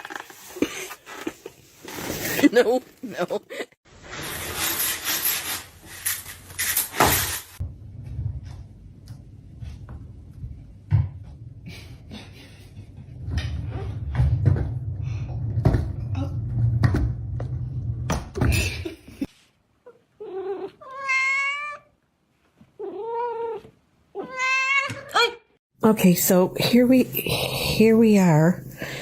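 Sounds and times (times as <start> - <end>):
cat meowing: 20.2 - 21.9, 24.2 - 25.2.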